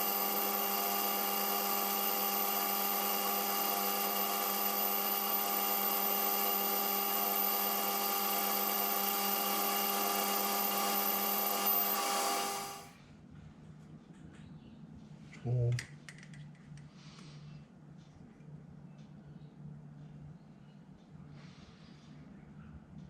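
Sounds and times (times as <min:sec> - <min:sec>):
metal lathe whining: 0:00.0 - 0:12.9.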